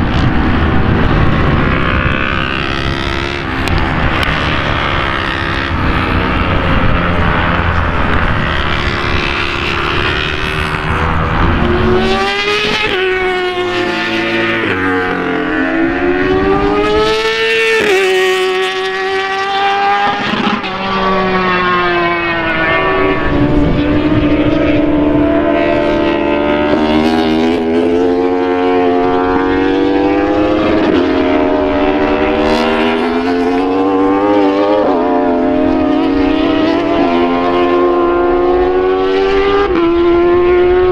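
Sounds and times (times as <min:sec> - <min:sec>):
racing motorcycle engines revving: 0:00.0 - 0:40.9.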